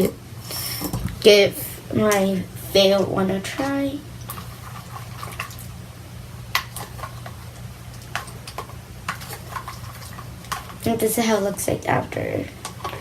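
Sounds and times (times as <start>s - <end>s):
slime squelching: 0.0s - 5.8s.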